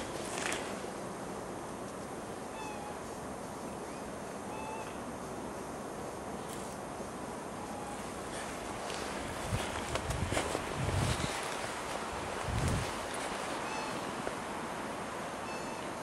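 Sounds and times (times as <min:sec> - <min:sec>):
steady background hiss: 0:00.0 - 0:16.0
bird calling: 0:02.5 - 0:03.1, 0:03.7 - 0:05.1, 0:13.4 - 0:14.3, 0:15.4 - 0:16.0.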